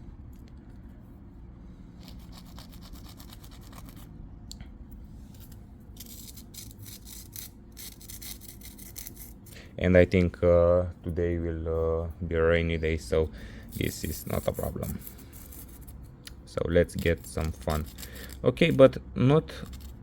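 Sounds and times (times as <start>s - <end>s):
low steady rumble: 0.0s - 20.0s
scratchy rubbing and scraping: 2.0s - 4.1s, 5.2s - 9.6s, 13.7s - 20.0s.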